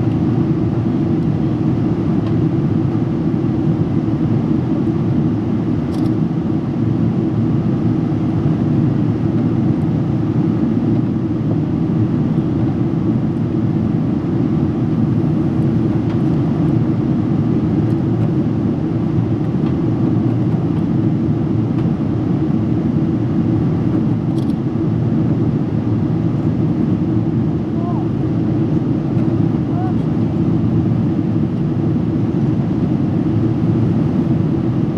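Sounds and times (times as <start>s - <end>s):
airliner cabin engine and airflow rush: 0.0s - 34.9s.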